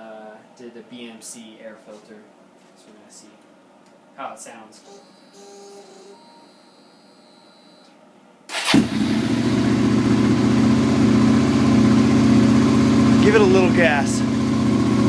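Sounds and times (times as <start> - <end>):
motorcycle engine starting: 8.5 - 15.0
motorcycle engine idling: 8.8 - 15.0.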